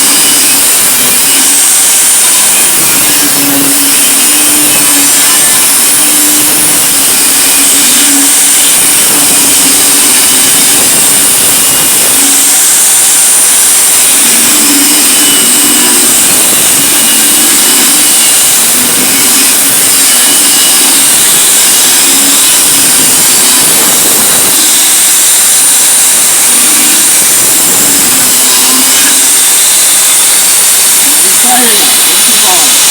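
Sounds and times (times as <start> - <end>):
power tool cutting metal: 0.0 - 32.9.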